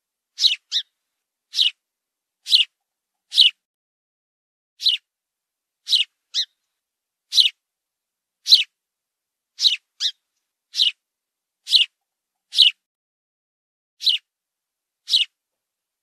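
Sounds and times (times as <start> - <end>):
small bird chirping: 0.3 - 1.8, 2.4 - 3.6, 4.8 - 5.1, 5.8 - 6.7, 7.3 - 7.6, 8.4 - 8.8, 9.6 - 11.0, 11.6 - 12.9, 14.0 - 14.3, 15.0 - 15.4.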